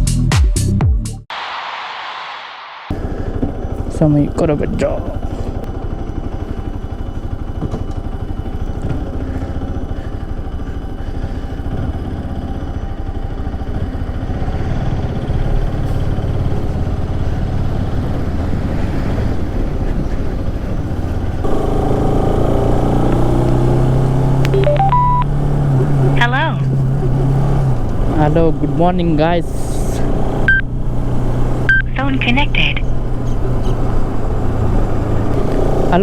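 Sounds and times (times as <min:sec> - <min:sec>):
loud high hum: 0:01.3 - 0:14.3, 0:21.4 - 0:28.2
motorcycle engine running: 0:02.9 - 0:36.0.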